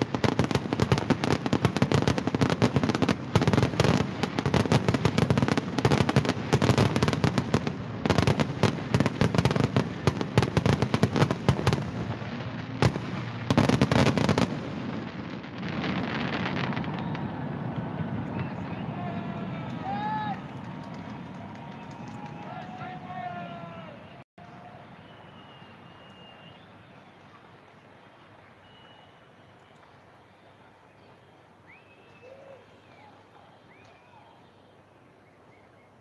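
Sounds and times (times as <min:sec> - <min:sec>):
fireworks bangs and crackles: 0:00.0 - 0:24.2.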